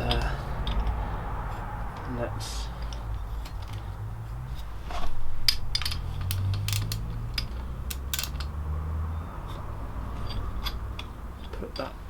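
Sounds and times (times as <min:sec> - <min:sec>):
metallic clicks of tools: 0:05.4 - 0:08.6.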